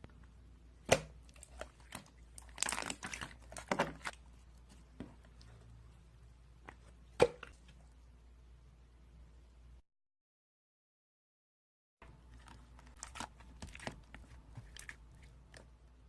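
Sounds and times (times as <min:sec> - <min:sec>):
sharp slime pop: 0:00.8 - 0:01.2
slime crackles and crunches: 0:01.2 - 0:04.6, 0:12.3 - 0:15.6.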